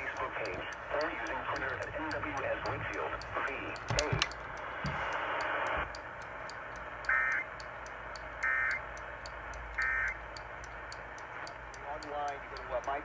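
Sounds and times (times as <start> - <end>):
radio static: 0.0 - 5.8
faint regular ticking: 0.0 - 13.0
two-tone digital data chirps: 7.1 - 7.5, 8.4 - 8.9, 9.8 - 10.2.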